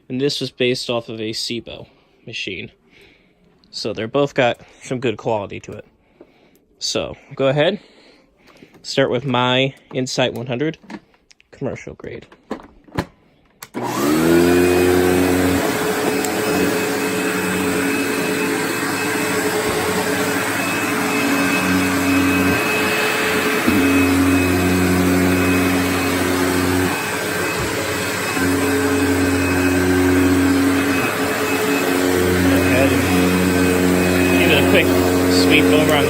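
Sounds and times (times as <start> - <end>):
vacuum cleaner motor whining: 13.6 - 36.0.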